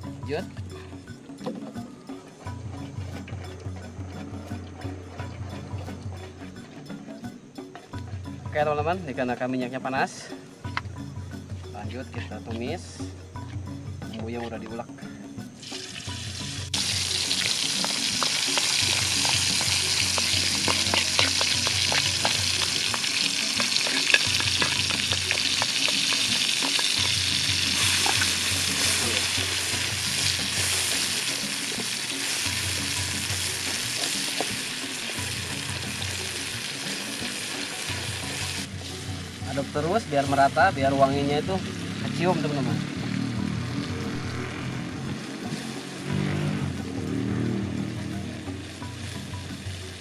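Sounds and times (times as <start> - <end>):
spice paste sizzling in hot oil: 15.6 - 41.4.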